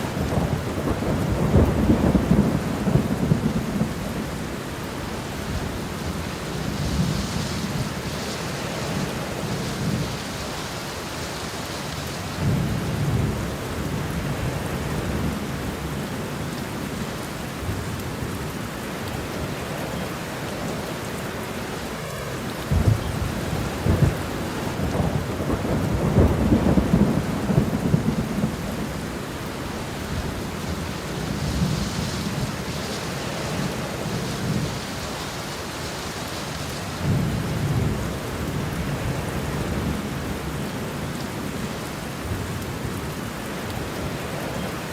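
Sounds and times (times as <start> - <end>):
rain falling: 0.0 - 44.9
thunder rolling: 0.1 - 4.3, 22.0 - 34.8.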